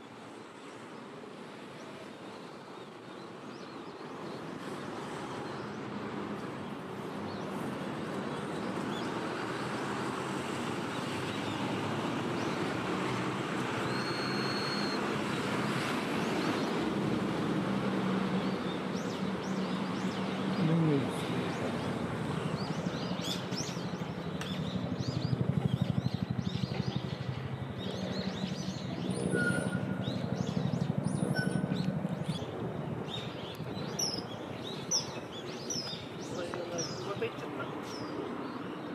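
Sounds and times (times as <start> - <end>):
short high bird chirps: 13.8 - 15.0.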